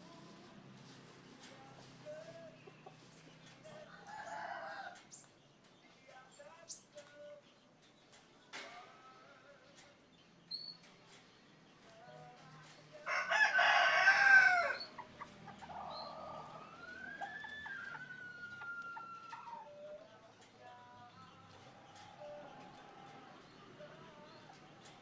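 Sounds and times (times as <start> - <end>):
rooster crowing: 3.8 - 5.0, 13.0 - 14.9, 15.8 - 19.8.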